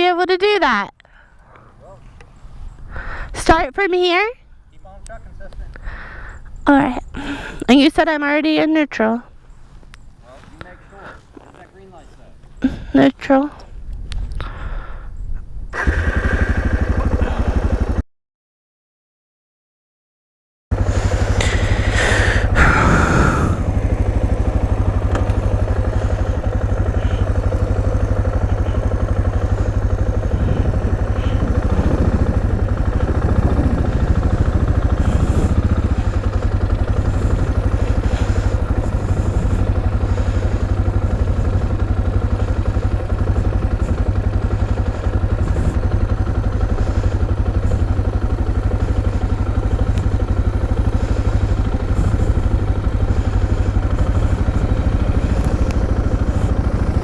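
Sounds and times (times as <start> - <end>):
motorcycle engine running: 15.7 - 18.0, 20.7 - 57.0.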